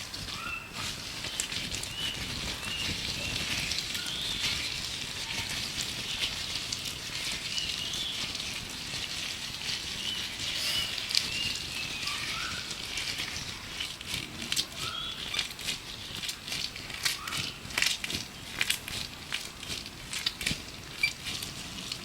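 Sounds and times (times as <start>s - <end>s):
gloves rubbing and crinkling: 0.0s - 22.0s
birds chirping: 10.0s - 12.7s.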